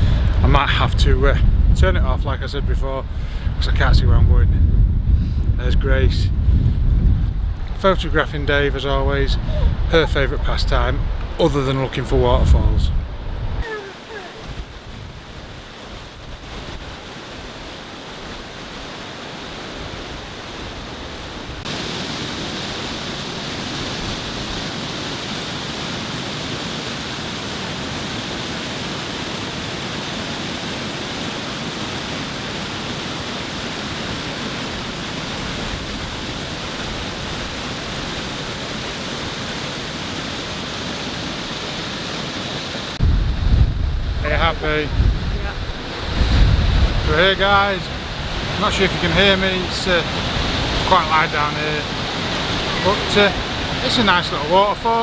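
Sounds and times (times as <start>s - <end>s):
waterfall rushing: 13.6s - 43.1s, 44.2s - 55.0s.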